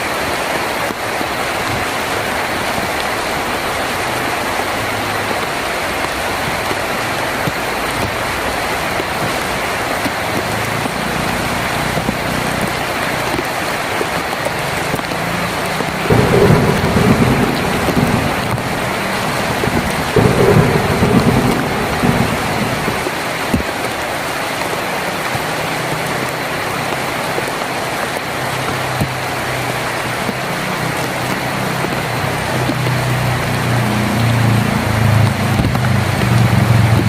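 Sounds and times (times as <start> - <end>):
heavy rain on a tin roof: 0.0 - 37.0
low thunder rumbles: 14.7 - 23.9.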